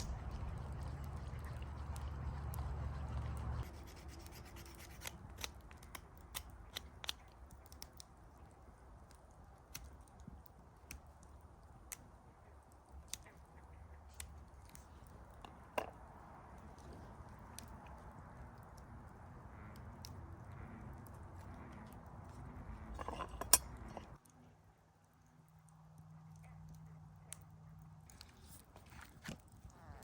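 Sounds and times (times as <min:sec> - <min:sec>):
low rumbling hum: 0:00.0 - 0:04.6.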